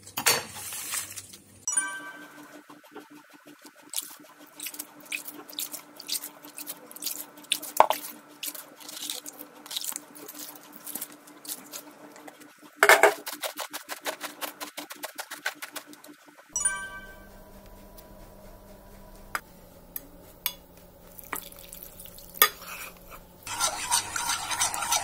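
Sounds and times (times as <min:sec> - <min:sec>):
water drips and splatters: 0:21.2 - 0:22.4.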